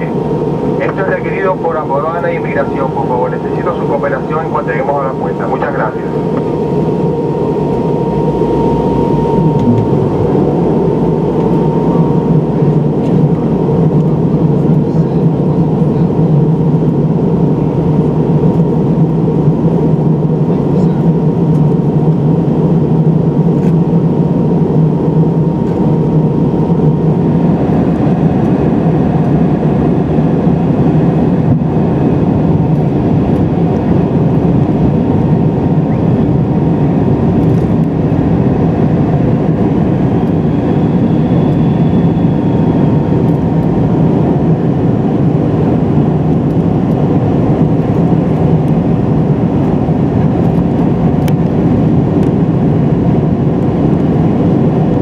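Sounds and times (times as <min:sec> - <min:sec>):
rushing air in cabin: 0:00.0 - 0:15.2
thin steady whine: 0:00.0 - 0:34.3, 0:35.0 - 0:49.3
jet engines humming: 0:00.0 - 0:55.0.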